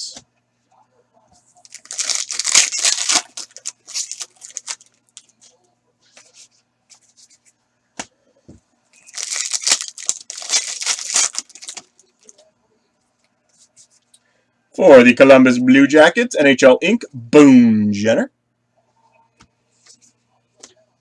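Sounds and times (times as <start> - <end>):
foil wrapper tearing and crinkling: 1.7 - 4.9, 9.0 - 12.3.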